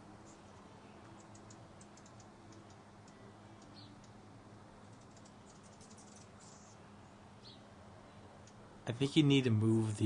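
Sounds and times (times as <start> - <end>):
low steady hum: 0.0 - 10.0
hummingbird ticking chips: 0.2 - 4.2, 4.8 - 6.8, 8.4 - 8.7.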